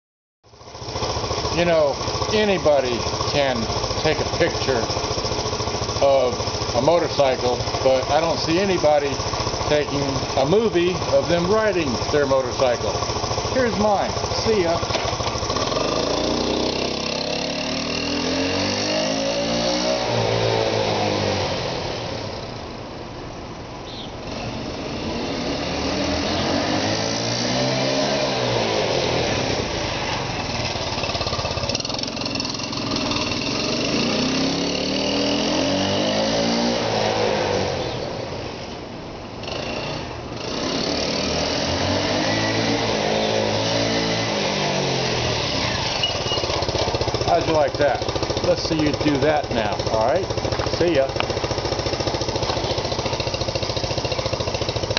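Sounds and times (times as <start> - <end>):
motorcycle engine revving: 0.5 - 22.9, 23.9 - 54.9.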